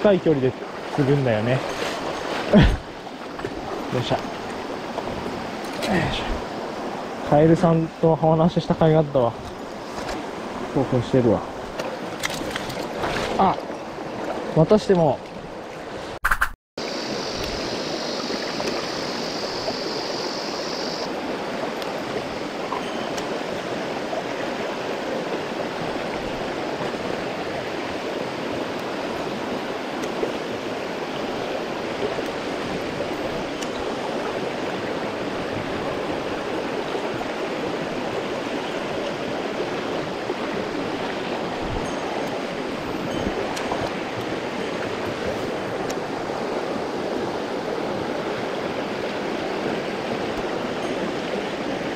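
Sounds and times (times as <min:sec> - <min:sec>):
stream water rushing: 0:00.0 - 0:16.2, 0:16.8 - 0:51.9
high wavering whine: 0:16.8 - 0:21.1.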